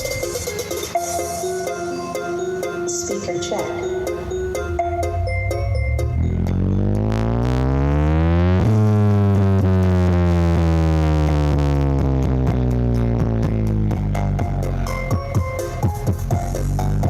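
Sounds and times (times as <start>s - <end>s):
distorted synth bass sweep: 4.8s - 17.0s.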